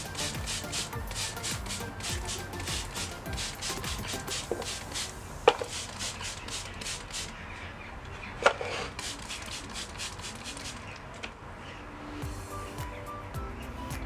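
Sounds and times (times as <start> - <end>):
scratchy rubbing strokes: 0.0 - 7.4, 8.6 - 11.0.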